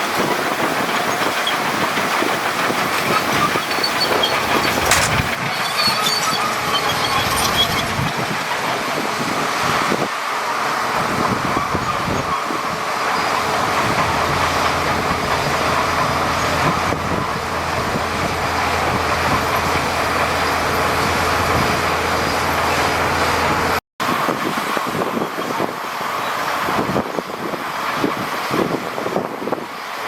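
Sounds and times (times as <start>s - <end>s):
heavy diesel engine running: 0.0s - 28.8s.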